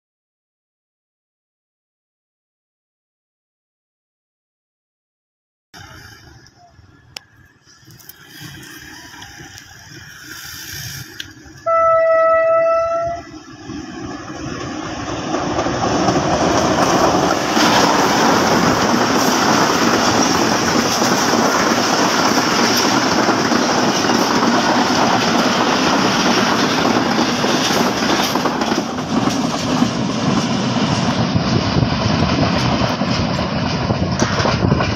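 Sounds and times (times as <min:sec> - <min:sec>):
train wheels rattling over rails: 0:07.3 - 0:34.9
train horn blast: 0:11.6 - 0:13.3.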